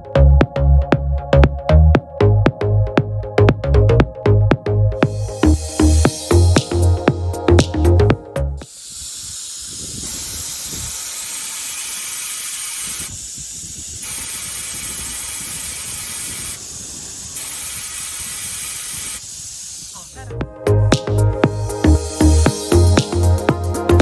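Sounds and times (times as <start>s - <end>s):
compressed air hissing: 5.0s - 24.0s.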